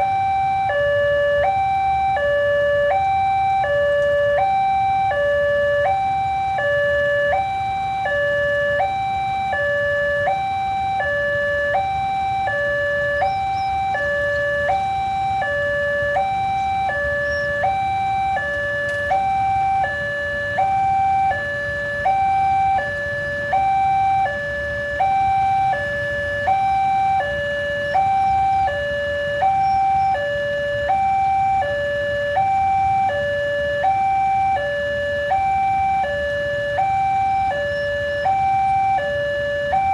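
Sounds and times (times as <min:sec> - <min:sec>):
level crossing two-tone alarm: 0:00.0 - 0:39.9.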